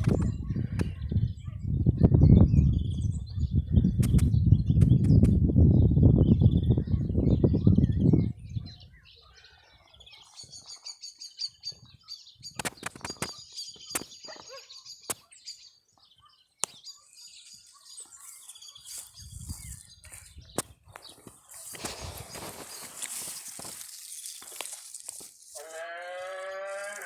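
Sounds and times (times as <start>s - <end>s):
small birds chirping: 0.0s - 27.0s
sharp clicks: 4.0s - 5.4s, 12.6s - 14.1s.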